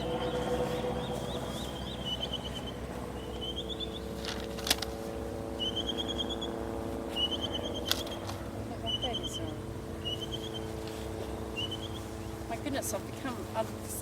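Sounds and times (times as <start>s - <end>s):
bird chirping: 0.0s - 4.4s, 5.6s - 12.4s
steady low hum: 0.0s - 14.0s.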